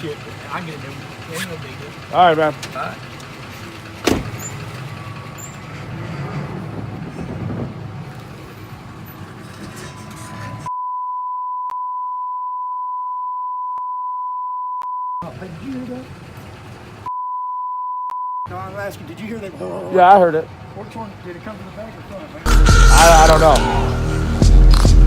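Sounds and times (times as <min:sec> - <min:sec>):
vehicle engine rumble: 0:00.0 - 0:10.7, 0:15.2 - 0:17.1, 0:18.5 - 0:25.0
censor bleep: 0:10.7 - 0:15.2, 0:17.1 - 0:18.5.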